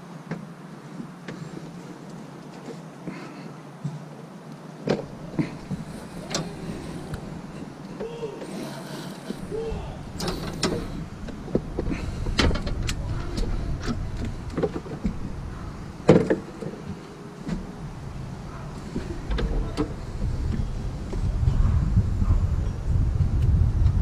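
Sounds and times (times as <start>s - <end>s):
low rumble: 17.6s - 24.0s.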